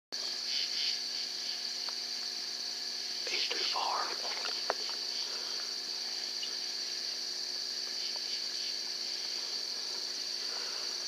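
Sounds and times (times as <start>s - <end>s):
night insects trilling: 0.2s - 11.0s.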